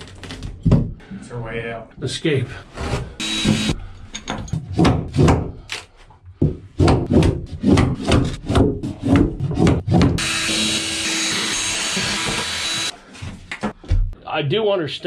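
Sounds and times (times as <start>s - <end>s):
steady machine hum: 3.2s - 3.8s.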